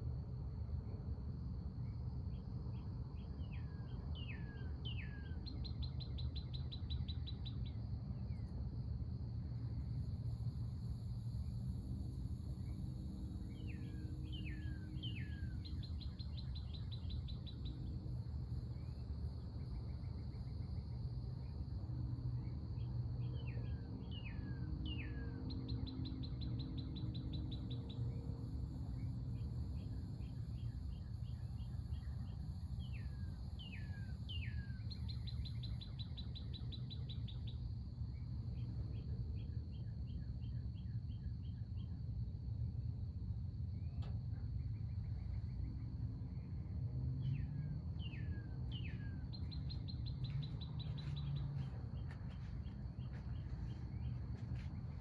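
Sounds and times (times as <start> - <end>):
songbird singing: 3.2 - 9.2, 10.3 - 42.0, 43.7 - 55.0
low background rumble: 3.8 - 55.0
high insect drone: 8.5 - 55.0.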